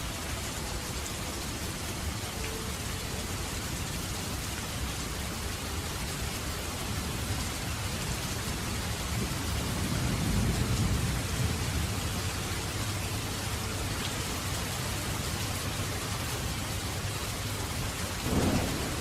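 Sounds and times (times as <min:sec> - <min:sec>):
heavy rain falling: 0:00.0 - 0:19.0
thunder rumble: 0:09.2 - 0:12.2, 0:18.2 - 0:19.0.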